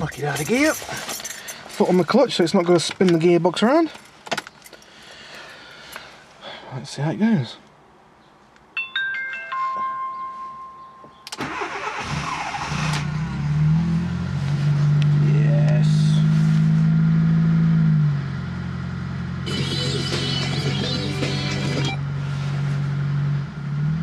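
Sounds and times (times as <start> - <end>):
starter motor cranking: 11.4 - 13.1
car engine fast idle: 11.4 - 13.3
short electronic tones: 19.5 - 22.0.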